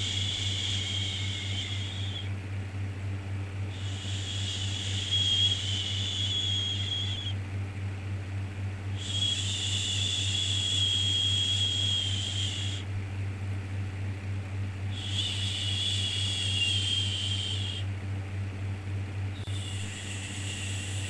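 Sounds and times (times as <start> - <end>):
shushing hiss: 0.0 - 2.3, 3.7 - 7.3, 9.0 - 12.9, 14.9 - 17.8, 19.4 - 21.0
low hum: 0.0 - 7.4.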